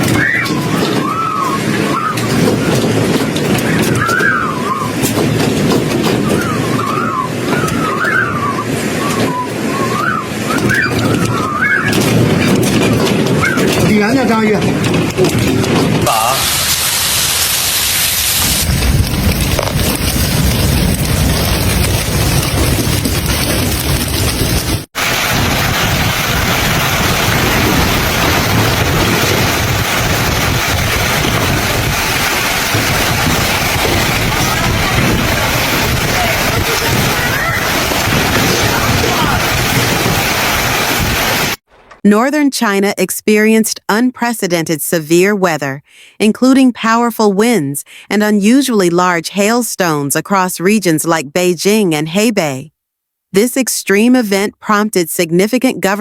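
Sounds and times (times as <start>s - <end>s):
wind roaring: 0.0s - 41.7s.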